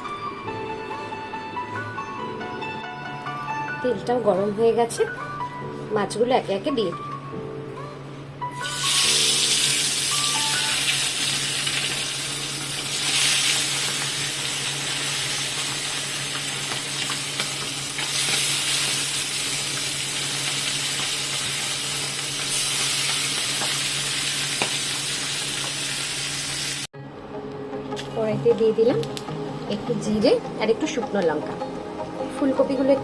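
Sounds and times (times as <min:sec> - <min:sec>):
fish sizzling in hot oil: 0:08.5 - 0:26.9.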